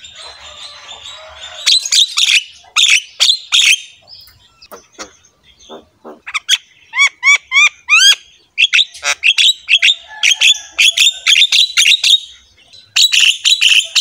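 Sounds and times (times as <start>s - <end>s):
bird chirping loudly: 0.0s - 14.0s.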